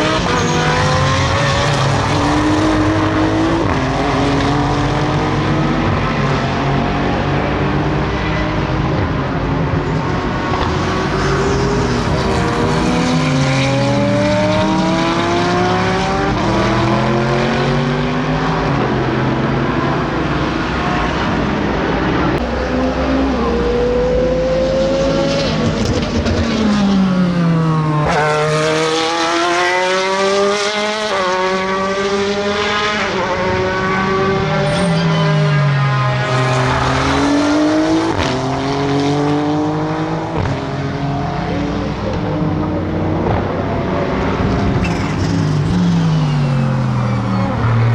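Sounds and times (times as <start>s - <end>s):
race car engines accelerating: 0.0s - 47.9s
race car passing by: 9.8s - 47.9s.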